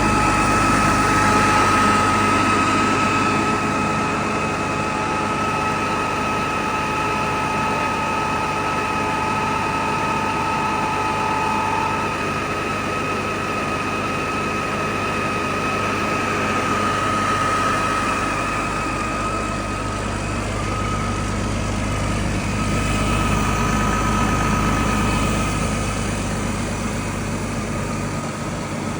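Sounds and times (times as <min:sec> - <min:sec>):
engine idling: 0:00.0 - 0:28.9
high whine: 0:16.3 - 0:28.9.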